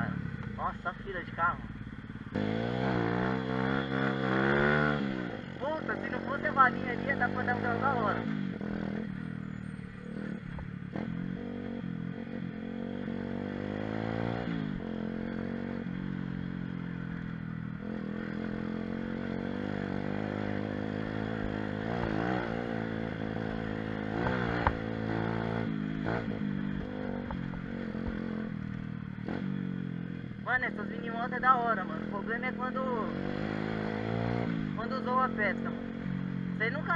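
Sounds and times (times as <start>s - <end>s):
small motorbike engine revving: 2.3s - 16.8s, 17.8s - 28.5s, 29.2s - 29.6s, 32.9s - 36.0s.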